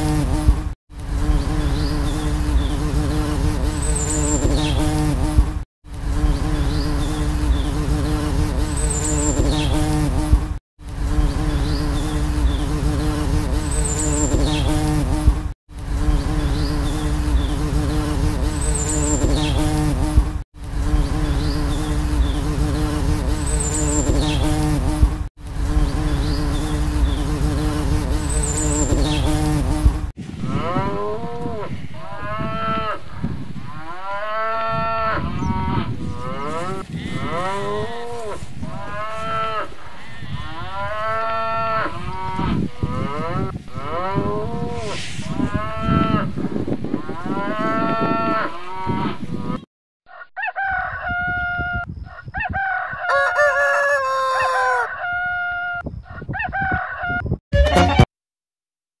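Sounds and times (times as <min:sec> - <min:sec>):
honeybee buzzing: 0:00.0 - 0:30.2
cattle mooing: 0:33.8 - 0:44.7
chickens clucking and squawking: 0:44.5 - 0:58.0.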